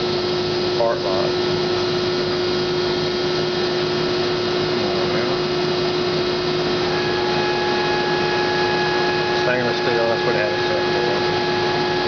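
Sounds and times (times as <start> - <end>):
hydraulic pump humming: 0.0 - 12.0
higher tone: 6.8 - 12.0.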